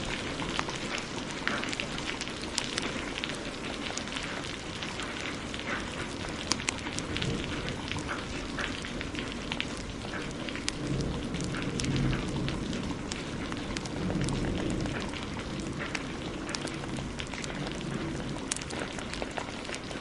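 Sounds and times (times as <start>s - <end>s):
heavy rain: 0.0s - 20.0s
wood fire crackling and popping: 0.0s - 20.0s.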